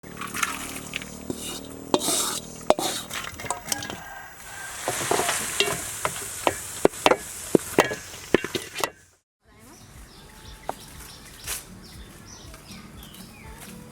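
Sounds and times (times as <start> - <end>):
utensil knocking and scraping pan: 0.1 - 9.1
food sizzling in a pan: 0.8 - 8.8.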